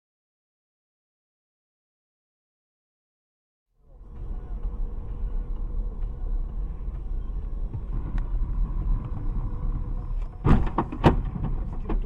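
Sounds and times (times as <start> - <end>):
car rumble: 3.8 - 12.0
faint steady hum: 3.8 - 12.0.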